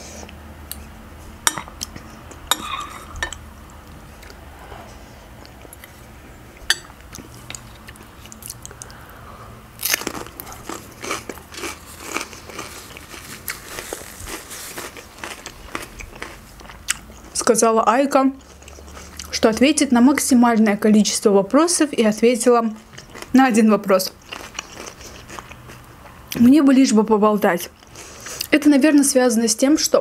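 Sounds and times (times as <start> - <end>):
metal spoon clinking glass bowl: 6.7 - 6.9
crunching raw radish: 9.8 - 17.3.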